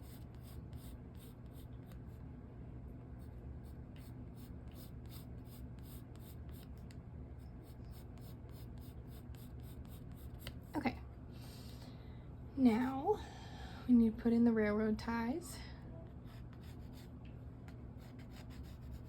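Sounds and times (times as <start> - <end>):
pencil scratching on paper: 0.0 - 1.9, 3.2 - 6.6, 7.6 - 10.6, 16.3 - 17.1, 18.0 - 19.0
steady low hum: 0.0 - 19.0.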